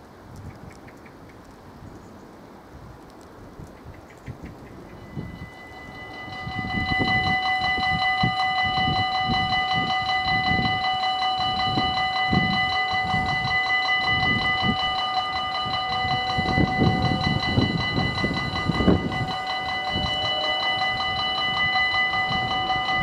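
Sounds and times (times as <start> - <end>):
level crossing bell ringing: 4.9 - 23.0.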